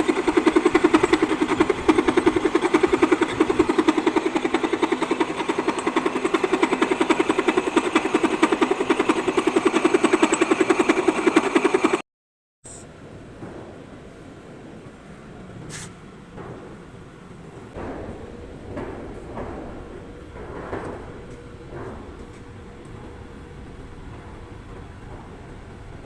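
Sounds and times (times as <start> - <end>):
milling machine cutting: 0.0 - 12.0.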